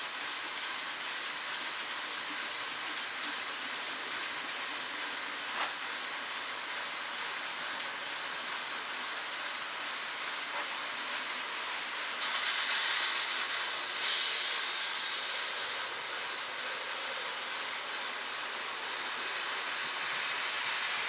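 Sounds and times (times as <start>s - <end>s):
model train wheels and motors humming: 0.0s - 21.0s
loud hiss: 7.8s - 21.0s.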